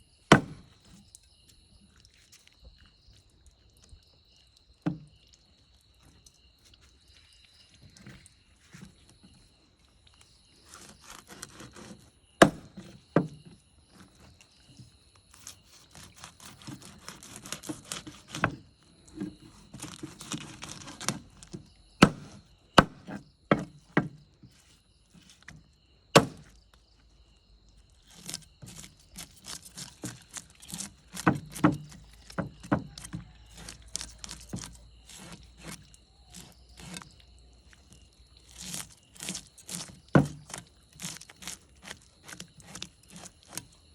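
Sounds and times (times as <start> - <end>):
knife chopping on wooden block: 0.3 - 0.7, 10.8 - 13.4, 16.0 - 18.6, 19.2 - 24.2, 26.2 - 26.5, 29.8 - 37.0, 38.7 - 43.6
scraping and handling noise: 6.0 - 26.7, 27.8 - 43.9.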